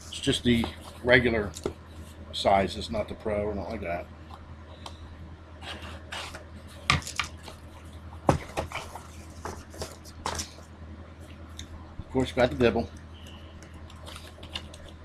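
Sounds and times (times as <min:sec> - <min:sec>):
steady low hum: 0:00.0 - 0:15.0
cardboard box rustling: 0:08.3 - 0:10.6.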